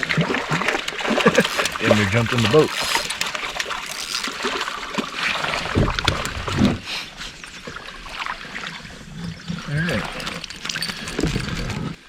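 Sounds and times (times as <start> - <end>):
water dripping and splashing: 0.0 - 6.8
fish flopping in plastic kayak: 0.0 - 12.0.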